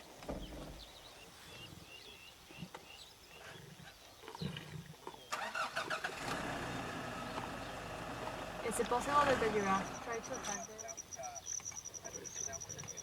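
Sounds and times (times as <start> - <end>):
vehicle engine starting and running: 5.3 - 10.7.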